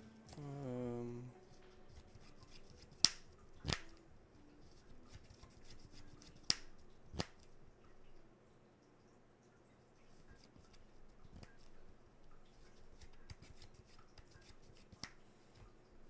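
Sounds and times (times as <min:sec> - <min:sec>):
faint card rustling: 0:00.0 - 0:08.3, 0:10.0 - 0:16.0
cards clicking on table: 0:01.5 - 0:04.0, 0:04.6 - 0:07.6, 0:12.6 - 0:15.7.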